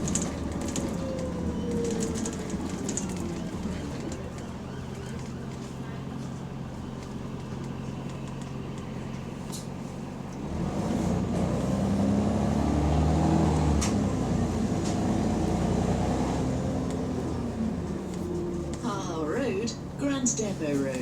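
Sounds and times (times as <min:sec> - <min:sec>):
sharp clicks and rattles: 0:00.0 - 0:05.7
bus diesel engine revving: 0:00.0 - 0:09.7, 0:10.3 - 0:20.7.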